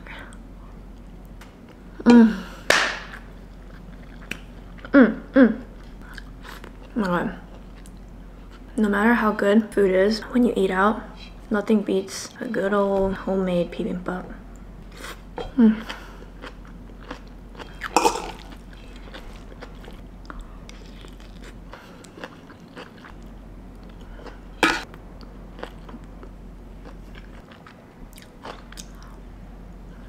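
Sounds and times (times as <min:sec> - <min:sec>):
person chewing food: 0:03.4 - 0:04.9, 0:14.9 - 0:29.2.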